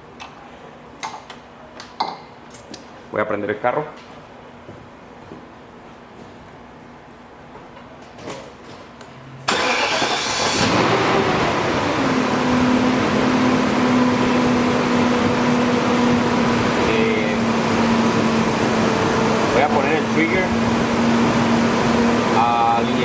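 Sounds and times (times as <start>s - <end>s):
car engine starting and idling: 9.4s - 23.0s.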